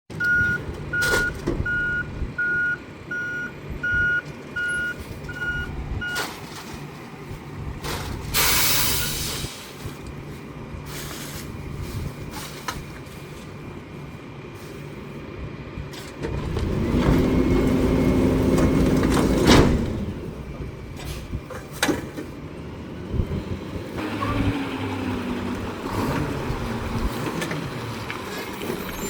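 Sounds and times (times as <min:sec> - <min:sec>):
diesel engine running: 0:00.1 - 0:29.0
truck reversing alarm beeping: 0:00.2 - 0:06.4, 0:08.4 - 0:09.5
air brakes hissing: 0:08.2 - 0:10.0.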